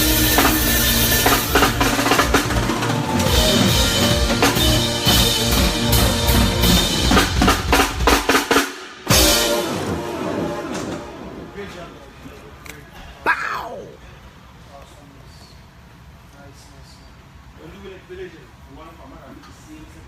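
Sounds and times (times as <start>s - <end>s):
loud drum hit: 0.0s - 12.0s
rapid drum fill: 0.0s - 12.0s
live band playing: 0.0s - 12.2s.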